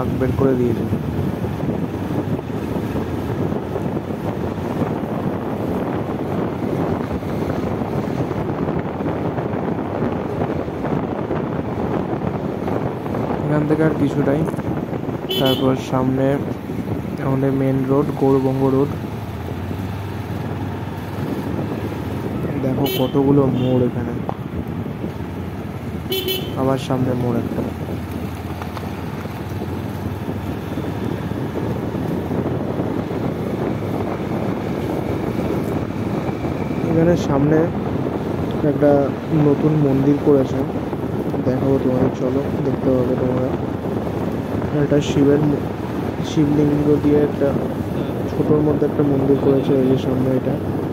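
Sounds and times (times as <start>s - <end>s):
motorcycle engine rumble: 0.0s - 50.9s
road noise: 0.0s - 50.9s
wind rushing over microphone: 0.0s - 50.9s
motorcycle engine: 14.6s - 39.8s.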